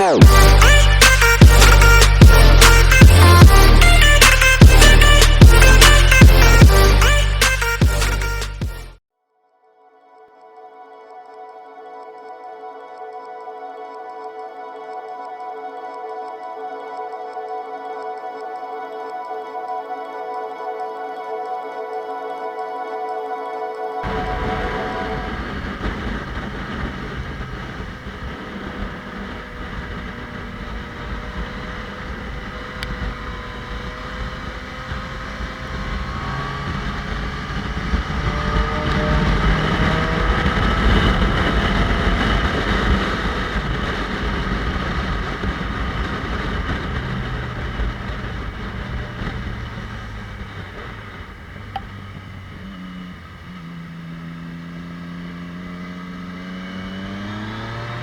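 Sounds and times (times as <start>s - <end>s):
motorcycle engine: 0.0s - 9.0s, 24.0s - 58.0s
wind rush over microphone: 24.0s - 52.7s.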